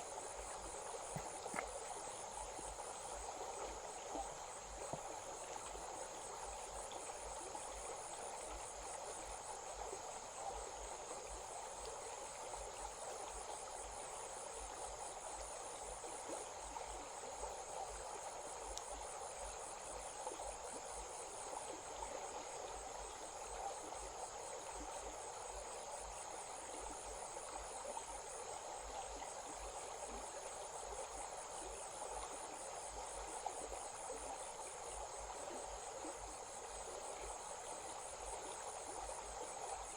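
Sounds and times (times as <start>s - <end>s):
insects trilling: 0.0s - 10.9s
stream running: 0.0s - 39.9s.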